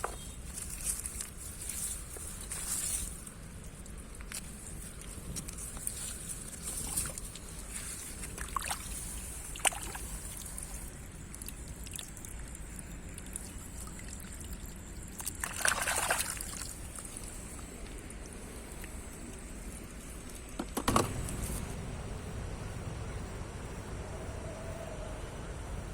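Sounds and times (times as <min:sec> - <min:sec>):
shallow water sloshing: 0:00.0 - 0:20.3.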